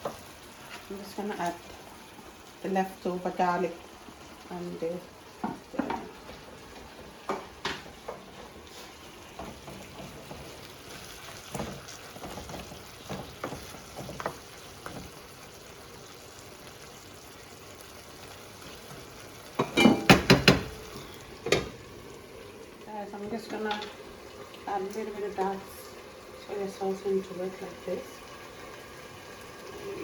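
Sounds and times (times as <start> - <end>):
meat and onions sizzling in pan: 0.0 - 30.0
utensil tapping against pan: 19.6 - 20.8.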